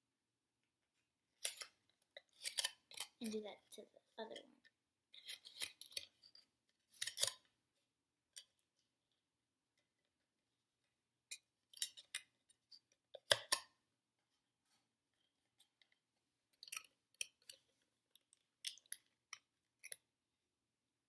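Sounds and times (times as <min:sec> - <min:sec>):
wire clicks and scrapes: 0:01.4 - 0:03.3, 0:05.1 - 0:07.5.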